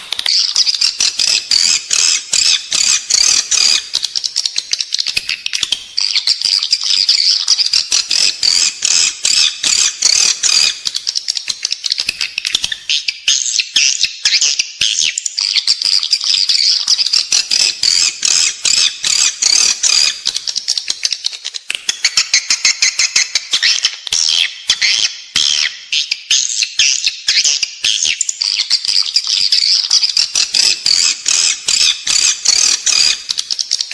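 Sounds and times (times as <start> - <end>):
swiftlets twittering chirps: 0.3 - 11.8, 29.0 - 33.9.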